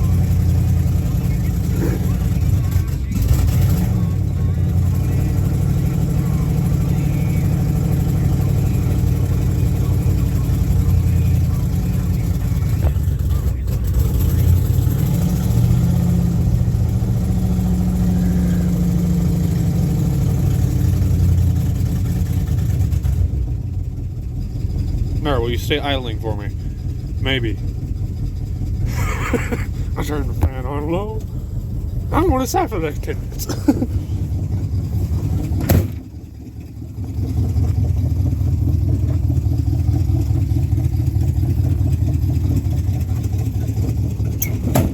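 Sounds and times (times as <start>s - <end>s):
car engine fast idle: 16.1s - 44.9s.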